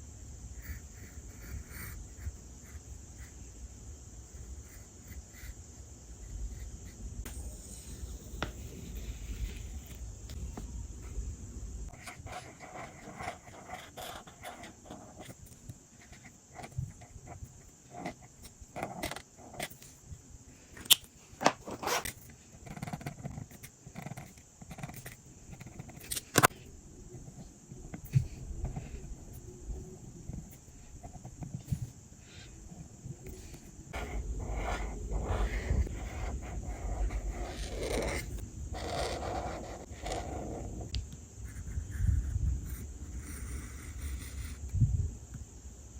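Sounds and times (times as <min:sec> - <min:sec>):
paper rustling and scraping: 0:21.4 - 0:22.1.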